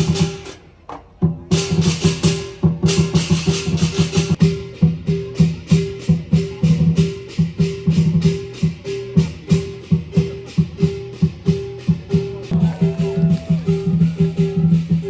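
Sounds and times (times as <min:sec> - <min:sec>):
cymbals clashing: 0:00.0 - 0:00.7, 0:01.5 - 0:15.0
large drum beating: 0:01.2 - 0:15.0.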